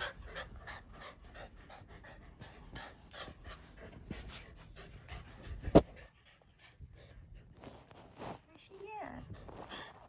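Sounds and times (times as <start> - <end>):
dog panting: 0.0 - 7.9.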